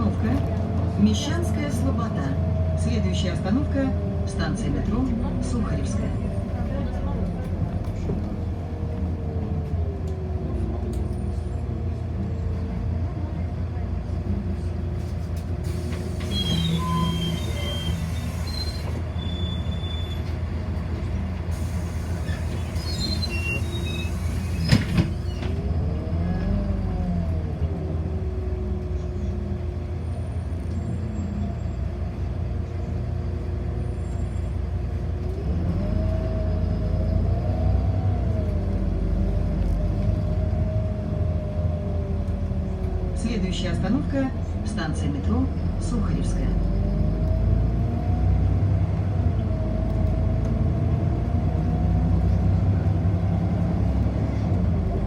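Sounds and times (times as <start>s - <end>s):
bus drive hum: 0.0s - 55.0s
bus whine rising and falling: 0.0s - 55.0s.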